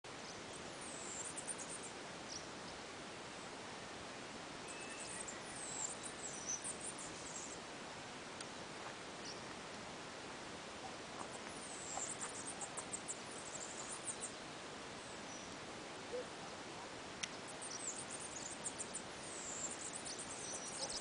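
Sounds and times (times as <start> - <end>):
steady background hiss: 0.1 - 21.0
birds chirping: 10.8 - 21.0.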